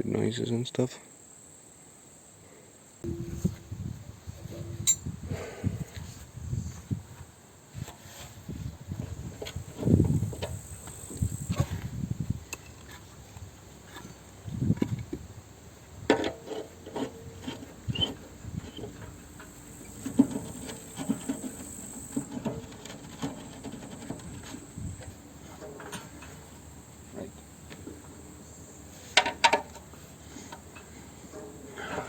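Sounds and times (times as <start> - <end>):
metal parts knocking and scraping: 16.1 - 26.8.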